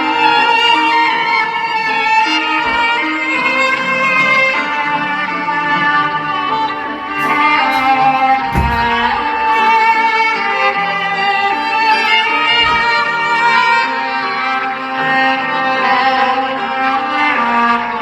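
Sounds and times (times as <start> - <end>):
low thud: 7.2 - 9.4.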